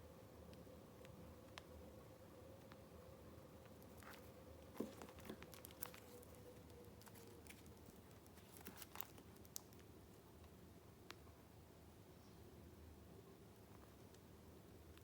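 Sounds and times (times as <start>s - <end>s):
faint steady hum: 0.0s - 15.0s
paper and card crinkling: 3.7s - 9.9s.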